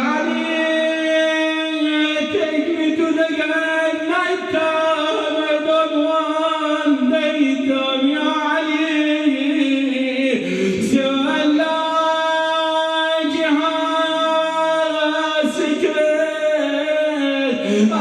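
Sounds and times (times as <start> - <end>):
man chanting unaccompanied: 0.0 - 18.0.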